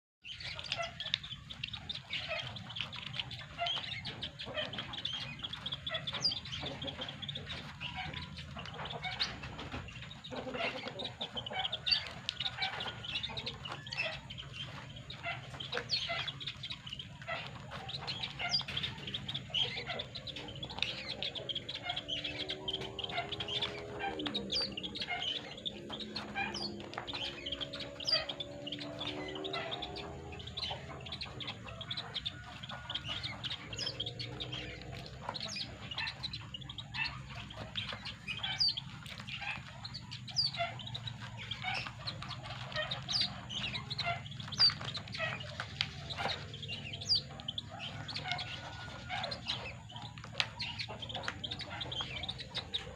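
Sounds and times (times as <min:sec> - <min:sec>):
chicks peeping: 0:00.2 - 0:52.9.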